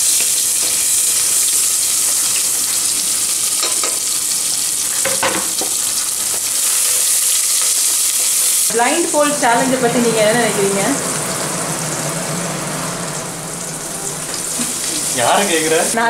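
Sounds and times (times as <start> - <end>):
onions sizzling in hot oil: 0.0 - 16.0
stirring knocks: 8.8 - 15.6.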